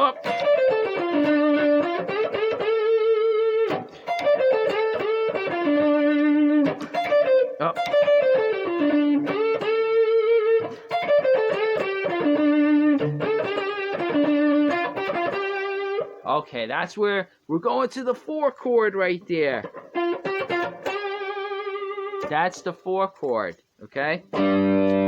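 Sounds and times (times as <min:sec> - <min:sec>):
overdriven electric guitar blues lick: 0:00.0 - 0:16.2, 0:19.6 - 0:22.4, 0:24.3 - 0:25.0.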